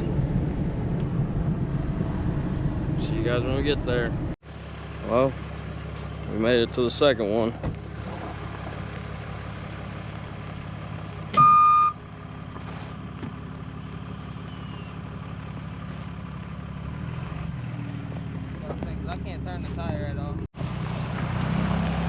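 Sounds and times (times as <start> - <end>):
vehicle engine idling: 0.0 - 21.2
loud high beep: 11.4 - 12.0.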